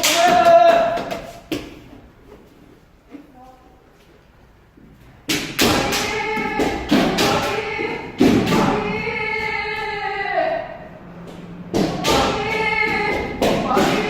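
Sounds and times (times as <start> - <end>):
people shouting together: 5.7 - 10.7.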